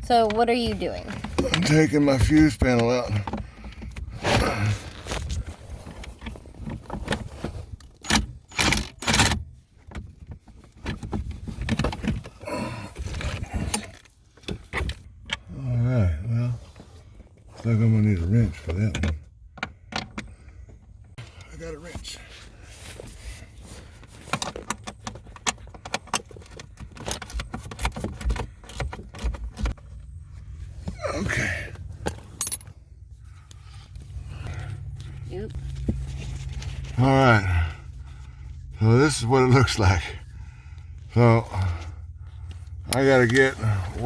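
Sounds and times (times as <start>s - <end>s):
dull low bumps: 29.4s - 44.0s
metal tools clinking: 32.0s - 32.8s.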